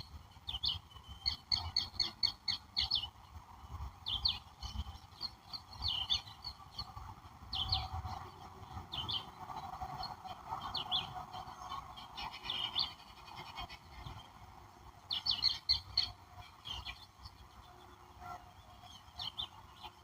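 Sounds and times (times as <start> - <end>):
distant birds or insects chorus: 0.0 - 20.0
songbird chirping: 0.0 - 20.0.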